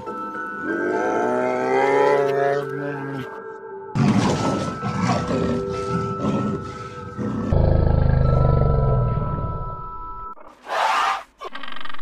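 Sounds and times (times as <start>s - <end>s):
background music: 0.0s - 10.4s
leopard growling: 4.0s - 9.3s.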